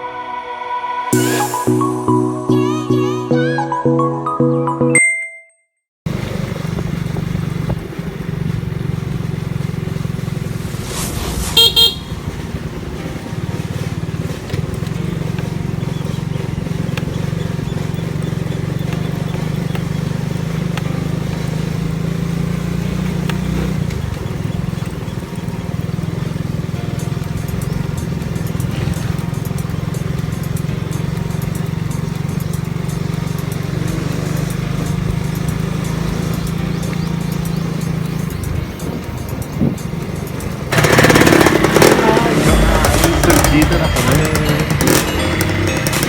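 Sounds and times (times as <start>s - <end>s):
horn toot: 0.0s - 3.8s, 10.8s - 12.7s
road noise: 6.1s - 46.0s
vehicle engine running: 6.1s - 46.0s.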